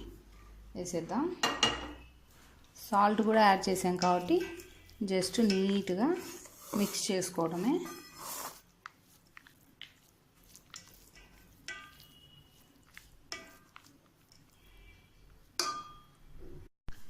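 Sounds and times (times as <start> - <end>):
spoon scraping rice in pot: 4.0 - 14.9
spoon clinking against pot: 10.8 - 14.4, 15.6 - 16.2.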